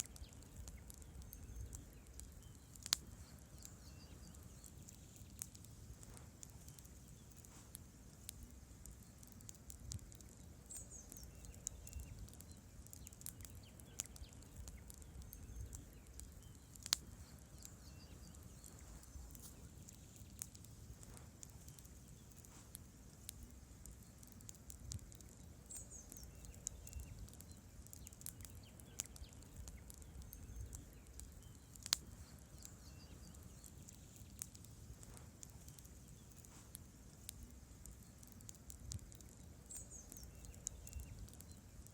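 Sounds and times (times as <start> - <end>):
campfire rumble: 0.0 - 41.9
fire crackling: 0.0 - 41.9
logs popping: 0.0 - 41.9.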